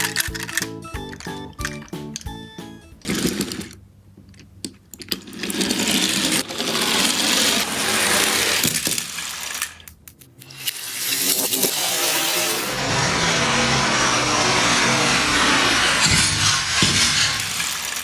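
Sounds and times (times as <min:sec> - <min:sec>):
small plastic clicks: 0:00.0 - 0:02.3
toy truck whirring and rattling: 0:00.0 - 0:02.4, 0:03.0 - 0:04.4, 0:05.0 - 0:18.0.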